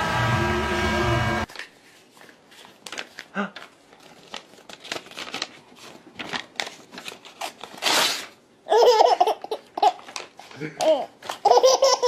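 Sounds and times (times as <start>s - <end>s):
paper tearing: 6.2s - 8.4s.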